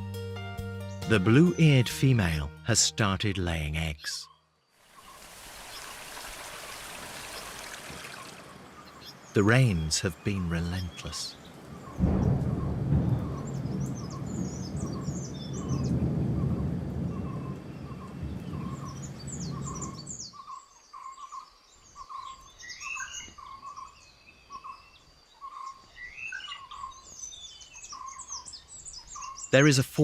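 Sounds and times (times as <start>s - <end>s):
rain: 4.8s - 20.3s
thunder rumble: 11.6s - 20.3s.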